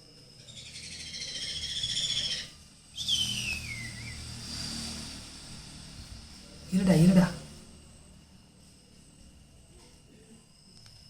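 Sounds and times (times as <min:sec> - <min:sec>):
conure chick shrill whistling cries: 0:00.5 - 0:04.1.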